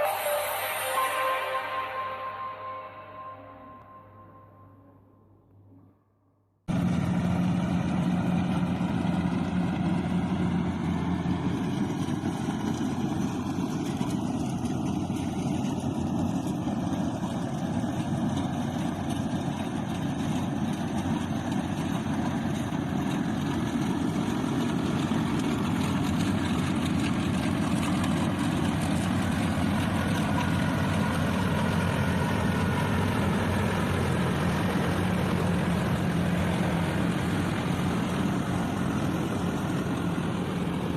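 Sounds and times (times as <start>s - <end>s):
harvester engine running: 6.7s - 40.9s.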